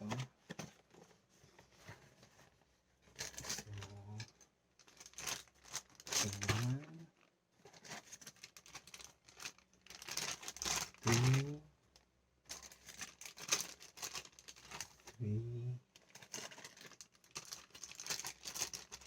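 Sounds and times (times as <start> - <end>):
plastic wrappers crinkling: 3.1 - 15.2, 15.9 - 19.0.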